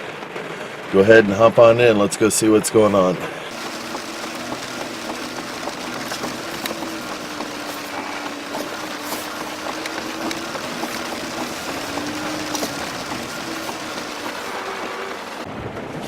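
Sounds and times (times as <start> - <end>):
rain wash noise: 0.0 - 15.5
vehicle engine drone: 2.9 - 16.0.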